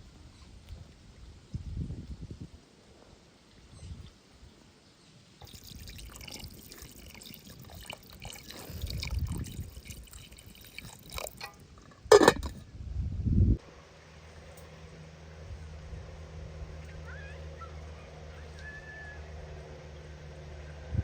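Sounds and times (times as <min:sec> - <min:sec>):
water pouring and dripping: 0:05.4 - 0:12.6.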